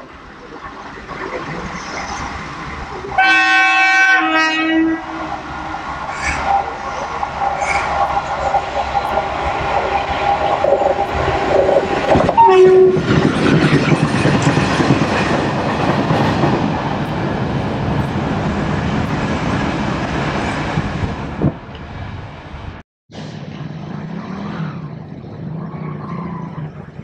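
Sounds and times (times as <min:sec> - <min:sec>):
train horn: 0:03.2 - 0:05.3, 0:12.3 - 0:13.0.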